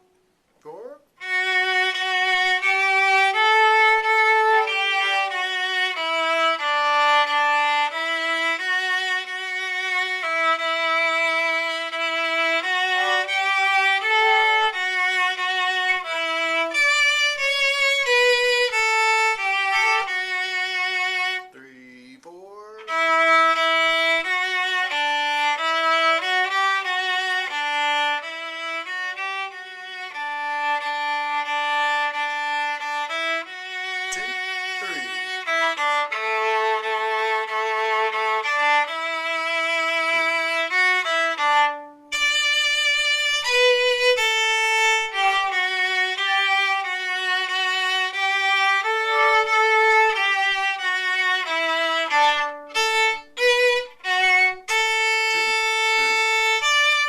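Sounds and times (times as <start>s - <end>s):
solo viola bowed melody: 0.0s - 57.0s.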